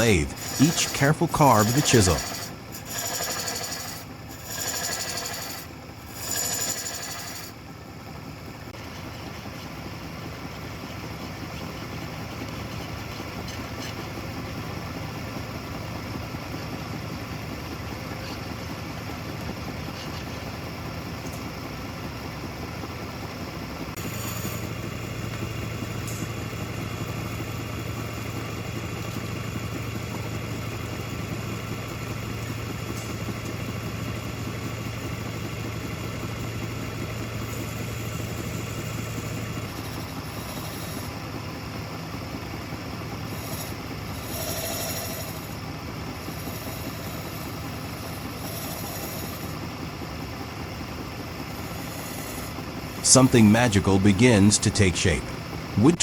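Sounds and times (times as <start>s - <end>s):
wood lathe motor hum: 2.2s - 7.5s.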